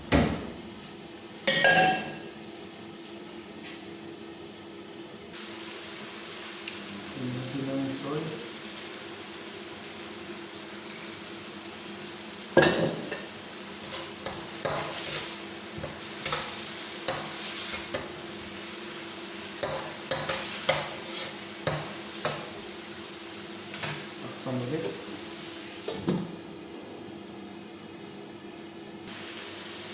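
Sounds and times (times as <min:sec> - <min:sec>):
faint sizzle: 0:00.0 - 0:29.9
spatula clanking on pan: 0:01.5 - 0:02.2, 0:12.6 - 0:18.1, 0:19.6 - 0:22.5.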